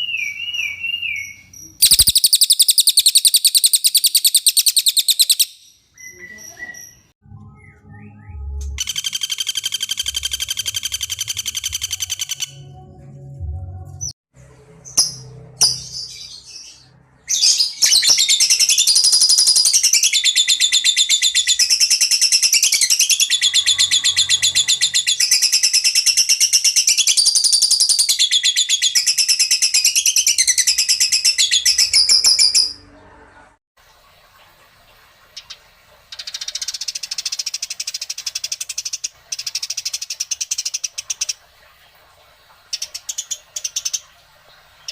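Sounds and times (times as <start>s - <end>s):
songbird trilling song: 0.0s - 12.8s.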